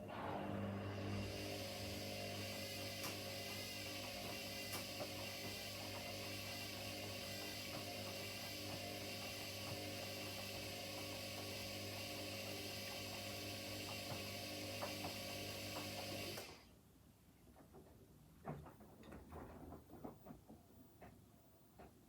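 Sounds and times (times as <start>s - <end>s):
washing machine motor hum and whine: 0.0s - 16.7s.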